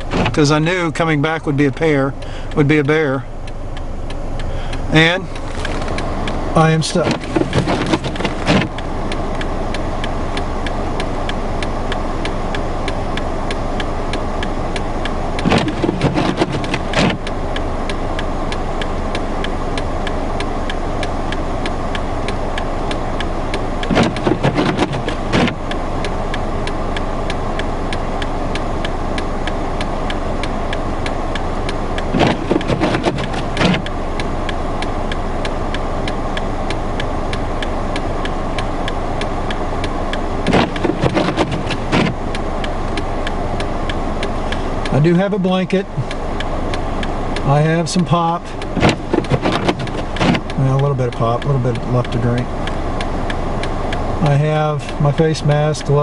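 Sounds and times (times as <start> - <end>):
car idling: 0.0 - 56.0
clicks and knocks: 6.9 - 8.8, 15.4 - 17.3, 23.8 - 25.7, 32.0 - 33.9, 40.4 - 42.2, 48.6 - 50.6.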